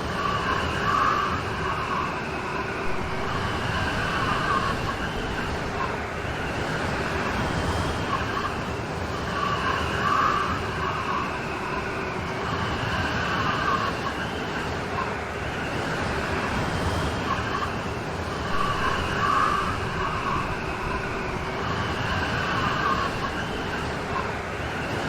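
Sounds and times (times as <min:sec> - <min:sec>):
rain hiss: 0:02.7 - 0:08.8, 0:18.3 - 0:24.6.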